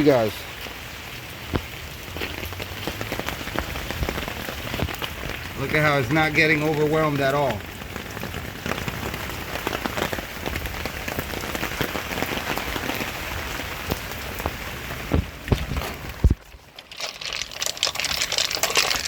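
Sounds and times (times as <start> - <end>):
rain pattering on hard surfaces: 0.0 - 19.0.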